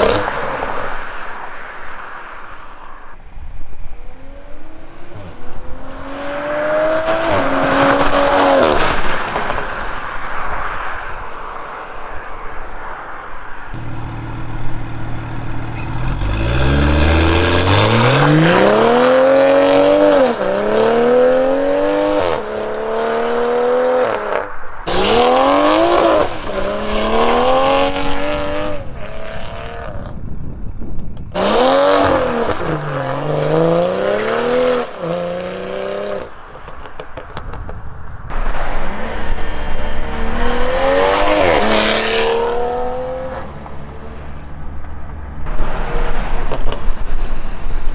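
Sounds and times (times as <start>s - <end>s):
car engine accelerating hard: 13.8s - 23.9s, 24.9s - 28.7s, 31.4s - 36.2s, 45.5s - 47.9s.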